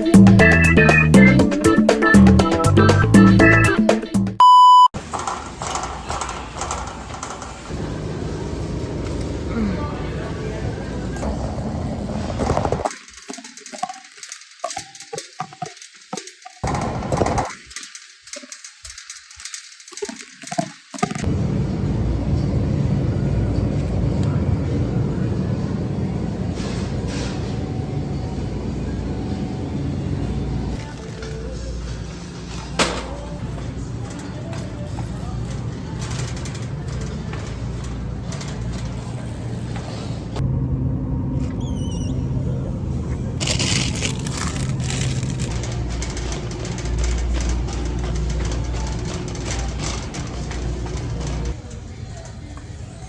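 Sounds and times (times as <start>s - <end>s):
scattered clicks and knocks: 5.0s - 9.3s, 12.3s - 21.3s, 43.4s - 52.3s
vehicle rumble: 5.0s - 12.9s, 21.2s - 53.0s
car rumbling: 34.9s - 51.6s.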